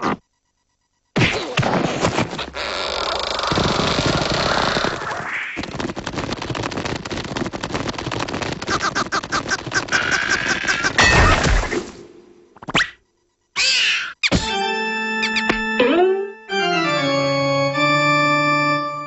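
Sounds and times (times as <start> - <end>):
squawking cartoon voices: 9.8 - 11.4, 13.6 - 14.3
cartoon knocks and crashes: 10.6 - 11.9, 14.2 - 14.6.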